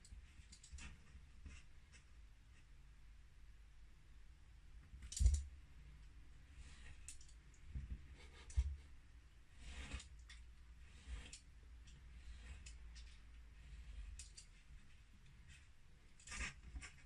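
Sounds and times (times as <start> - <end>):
knife scraping paper along ruler: 9.6 - 10.2, 10.8 - 11.5.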